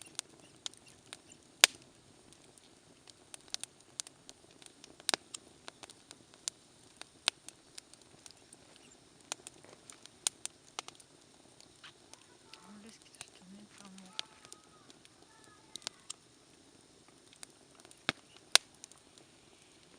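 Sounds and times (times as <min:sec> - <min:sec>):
campfire crackling: 0:00.0 - 0:19.9
faint hiss: 0:00.0 - 0:19.9.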